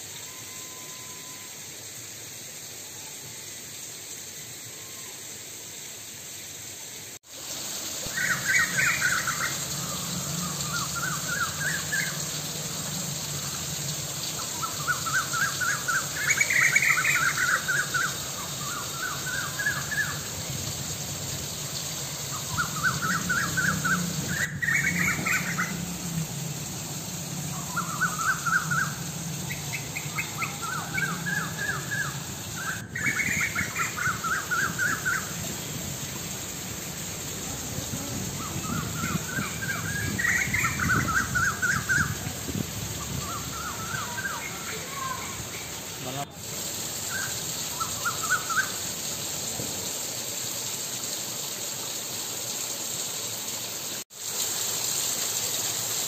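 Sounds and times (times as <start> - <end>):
background hiss: 0.0 - 56.0
bird singing rising notes: 8.1 - 35.8, 37.7 - 46.0.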